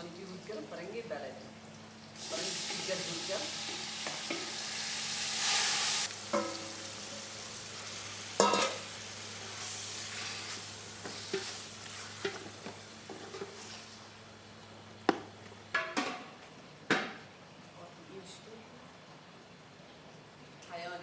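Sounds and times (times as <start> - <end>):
food sizzling in hot oil: 0.0 - 16.0
utensil clanking against pan: 3.6 - 4.6, 6.3 - 6.9, 8.4 - 8.9, 11.0 - 13.6.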